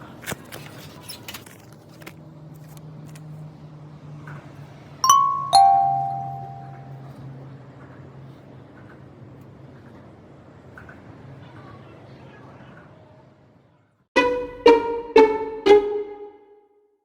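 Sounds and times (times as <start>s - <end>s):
two-note ding-dong chime: 5.0s - 7.2s, 14.2s - 16.5s.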